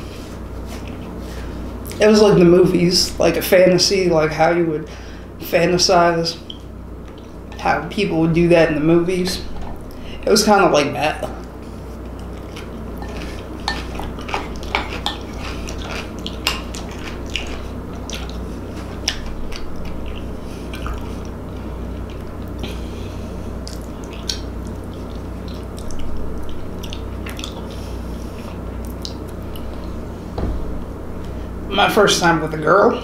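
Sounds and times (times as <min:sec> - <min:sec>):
steady low hum: 0:00.0 - 0:33.0
wet chewing mouth clicks: 0:11.4 - 0:22.8, 0:23.6 - 0:30.0.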